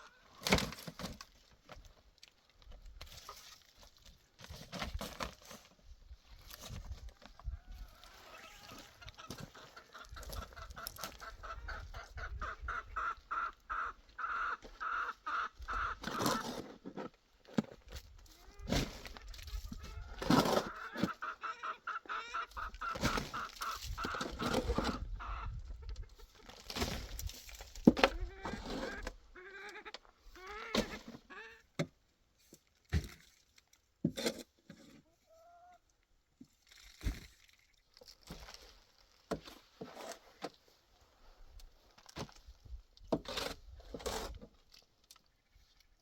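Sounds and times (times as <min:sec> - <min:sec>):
chickens clucking: 0:06.7 - 0:17.2, 0:18.2 - 0:31.7.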